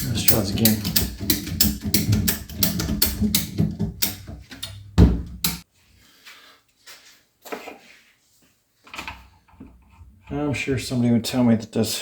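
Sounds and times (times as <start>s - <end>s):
ratchet strap clicking: 0.0s - 5.6s.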